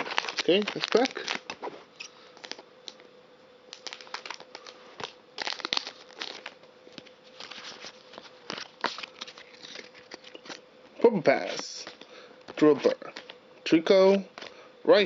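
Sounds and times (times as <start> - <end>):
foil wrapper tearing and crinkling: 0.0 - 3.0, 3.7 - 10.6
faint steady hum: 0.0 - 15.0.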